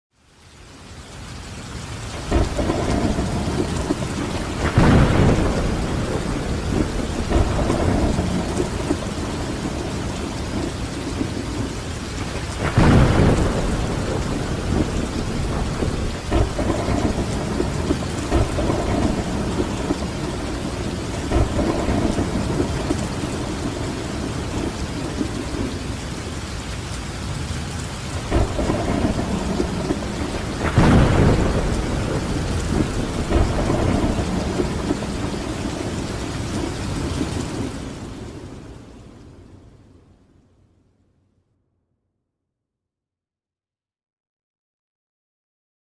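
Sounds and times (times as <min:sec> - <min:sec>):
steady rain falling: 0:00.1 - 0:41.0
rolling thunder: 0:02.2 - 0:26.1, 0:27.3 - 0:38.7.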